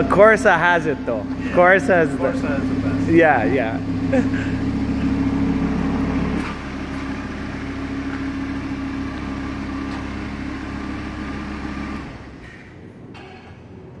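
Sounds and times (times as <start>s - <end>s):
car engine idling: 0.0s - 13.2s.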